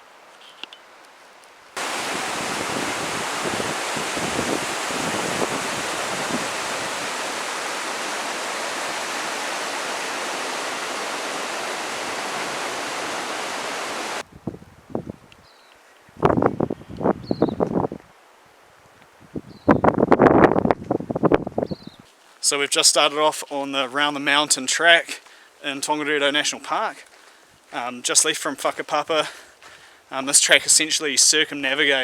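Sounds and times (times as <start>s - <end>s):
rushing water: 1.8s - 14.2s.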